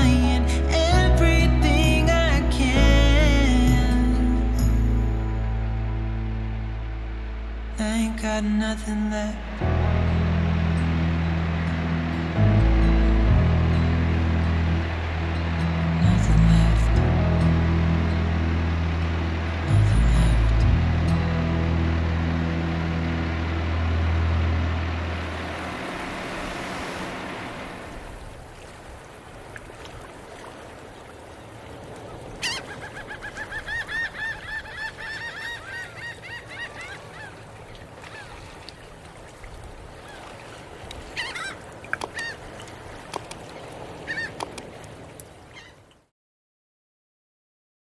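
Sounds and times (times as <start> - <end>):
music: 0.0 - 25.2.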